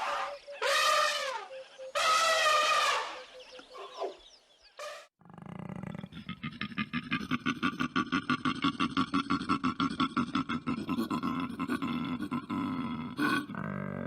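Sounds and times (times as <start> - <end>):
low animal sound: 4.8 - 14.0.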